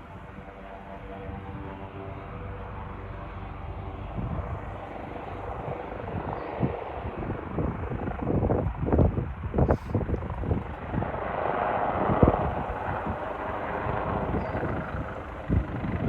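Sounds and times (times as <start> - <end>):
helicopter rotor noise: 0.0 - 16.0.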